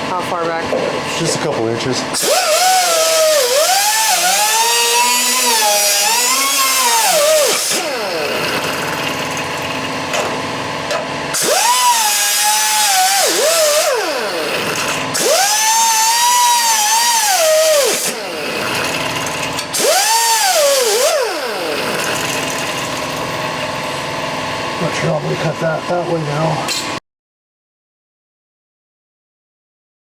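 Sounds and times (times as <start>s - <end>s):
power tool cutting sheet metal: 2.1s - 9.9s, 11.3s - 23.8s.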